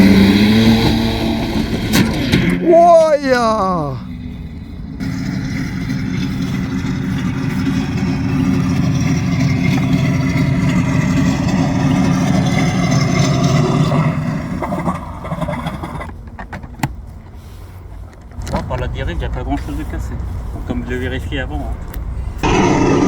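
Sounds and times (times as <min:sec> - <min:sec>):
simulated piston engine sound: 0:22.4 - 0:23.0.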